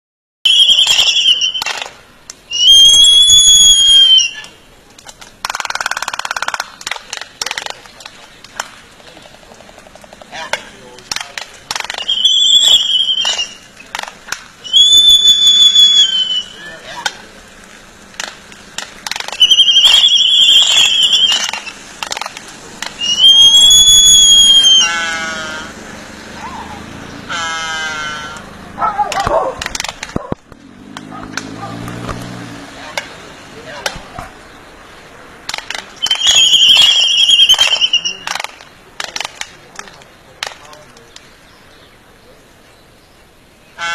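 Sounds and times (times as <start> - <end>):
birds whistling: 0.5 - 1.9, 2.5 - 4.6, 11.7 - 17.3, 19.1 - 29.5, 35.9 - 38.8, 40.7 - 43.9
sharp clicks: 4.4 - 15.1, 17.0 - 23.8, 29.1 - 32.3, 35.4 - 41.3.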